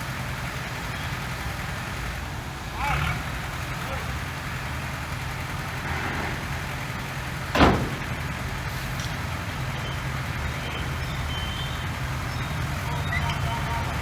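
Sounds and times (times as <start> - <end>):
diesel engine running: 0.0 - 14.0
loud bang: 5.9 - 8.4.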